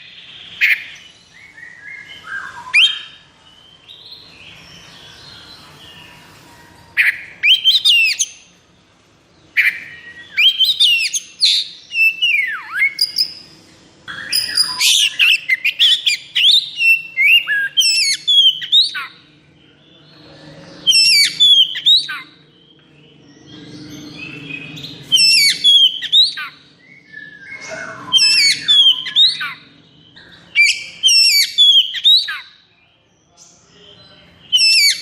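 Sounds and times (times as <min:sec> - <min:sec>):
songbird whistling song: 0:00.0 - 0:08.7, 0:09.5 - 0:19.4, 0:20.5 - 0:35.0.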